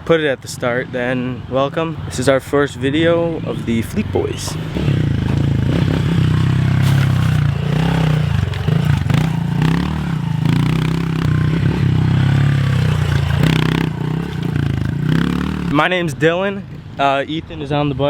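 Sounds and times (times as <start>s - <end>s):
motorbike engine revving: 3.4s - 17.1s.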